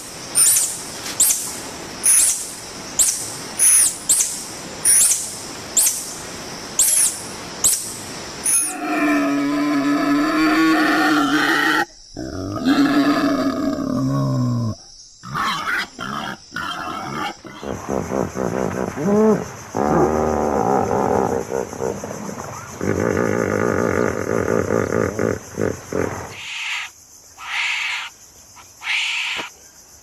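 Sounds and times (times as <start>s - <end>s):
long animal call: 8.7s - 28.1s.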